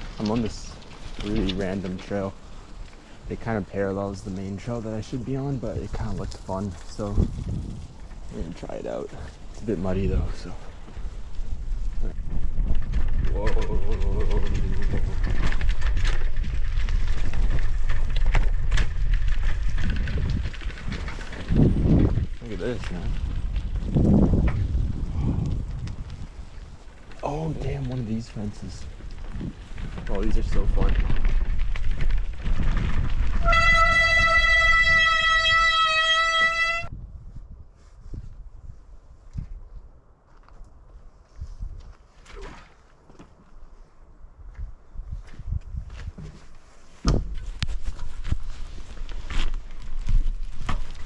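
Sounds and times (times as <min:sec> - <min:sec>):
bicycle rattling and knocking: 0:00.0 - 0:08.6, 0:09.2 - 0:36.9, 0:45.5 - 0:51.0
wind buffeting microphone: 0:00.0 - 0:42.2, 0:43.6 - 0:51.0
bicycle brakes squealing: 0:33.3 - 0:36.9.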